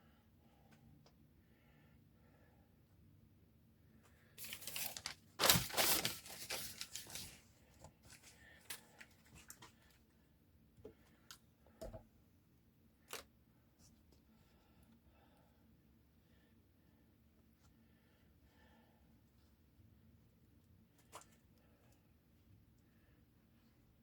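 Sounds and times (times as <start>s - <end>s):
newspaper tearing: 4.4s - 7.4s
paper rustling and tapping: 4.4s - 9.8s.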